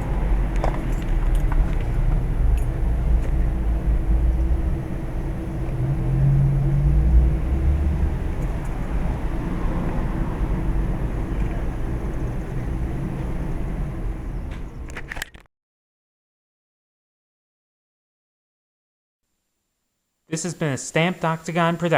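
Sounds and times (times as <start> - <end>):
faint constant hum: 0.0 - 15.2
low outdoor rumble: 0.0 - 15.2.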